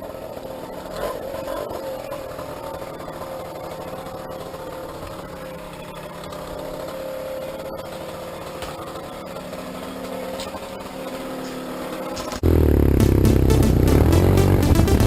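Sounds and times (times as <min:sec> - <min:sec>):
small engine idling: 0:00.0 - 0:15.0
loud electronic music: 0:12.4 - 0:15.0.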